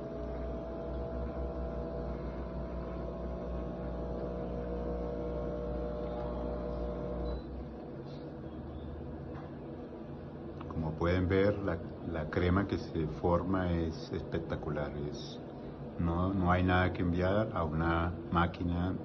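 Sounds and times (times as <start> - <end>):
espresso machine pump humming: 0.0 - 19.0.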